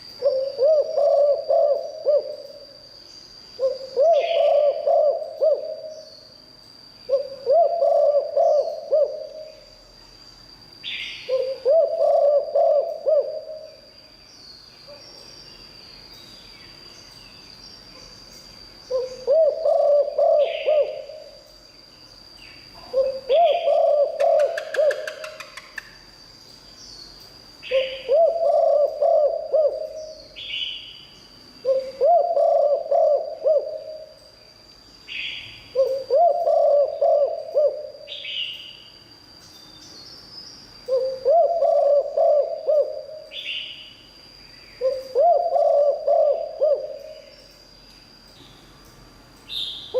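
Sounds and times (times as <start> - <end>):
steady high-pitched whine: 0.0 - 49.9
dove cooing: 0.2 - 2.7, 3.6 - 6.0, 7.1 - 9.6, 11.3 - 13.9, 18.9 - 21.4, 22.8 - 25.6, 27.6 - 30.2, 31.6 - 34.1, 35.7 - 38.3, 40.9 - 43.5, 44.8 - 47.3.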